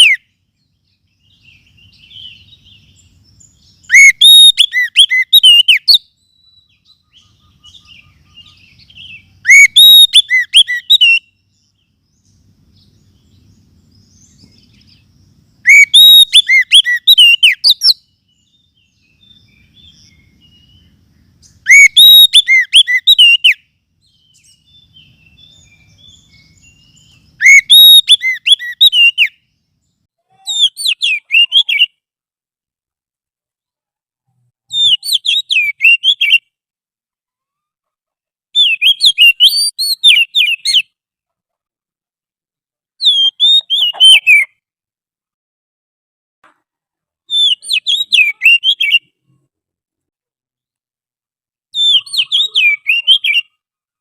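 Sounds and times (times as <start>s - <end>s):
loud whistled bird notes: 0.0s - 29.5s, 30.5s - 32.0s, 34.7s - 36.5s, 38.6s - 41.0s, 43.0s - 44.6s, 47.3s - 49.1s, 51.8s - 53.5s
magpie-robin song: 0.0s - 32.0s, 34.7s - 36.5s, 38.6s - 41.0s, 43.0s - 44.6s, 47.3s - 49.4s, 51.7s - 53.6s.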